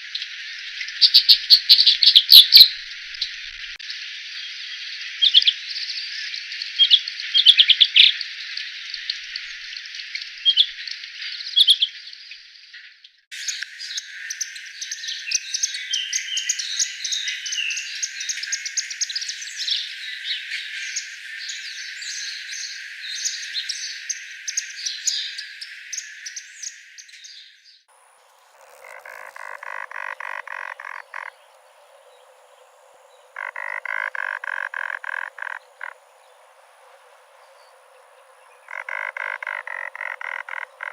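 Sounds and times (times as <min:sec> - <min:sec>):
sharp bird chirps: 0:00.0 - 0:03.8, 0:33.1 - 0:36.4
rapid pulsed croaking call: 0:00.0 - 0:04.1, 0:28.2 - 0:40.9
chorus of quick bird calls: 0:13.3 - 0:40.9
high insect hiss: 0:27.9 - 0:40.9.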